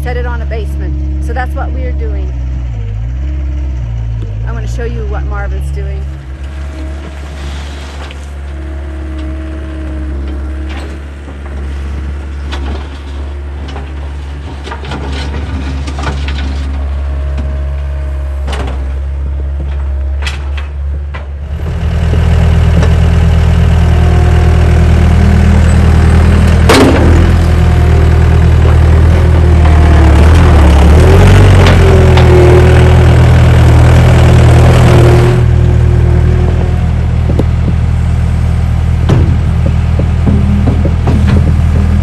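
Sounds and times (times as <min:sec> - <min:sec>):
skid steer engine running: 0:00.0 - 0:42.0
rock and metal knocks and clanks: 0:26.5 - 0:27.7, 0:37.2 - 0:37.9, 0:39.0 - 0:42.0.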